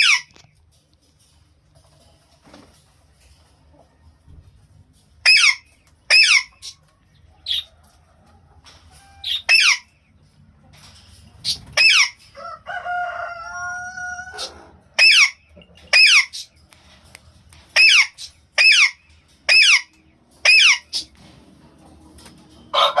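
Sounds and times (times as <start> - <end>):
parakeets screeching: 5.2 - 6.8, 9.1 - 9.9, 11.4 - 12.2, 14.0 - 16.5, 17.8 - 21.2.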